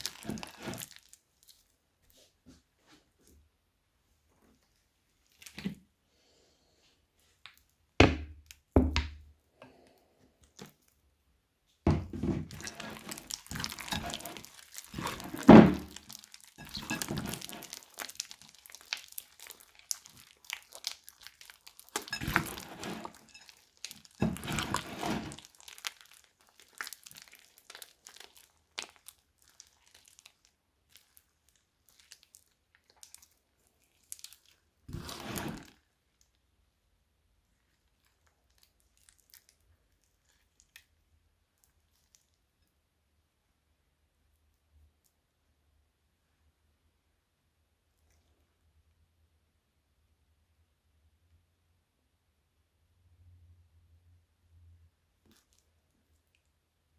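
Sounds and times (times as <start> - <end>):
crunchy slime crackling: 0.0 - 1.7, 12.4 - 35.8, 37.8 - 40.9.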